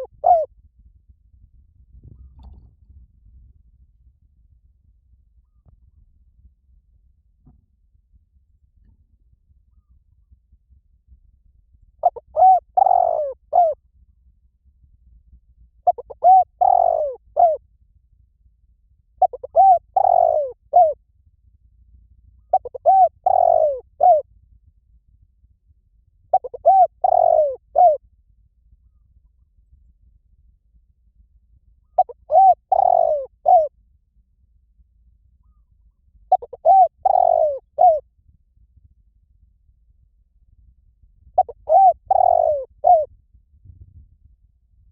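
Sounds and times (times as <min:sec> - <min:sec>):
dove cooing: 0:00.0 - 0:00.5, 0:12.0 - 0:13.8, 0:15.8 - 0:17.6, 0:19.2 - 0:21.0, 0:22.5 - 0:24.2, 0:26.3 - 0:28.0, 0:31.9 - 0:33.7, 0:36.3 - 0:38.0, 0:41.4 - 0:43.1.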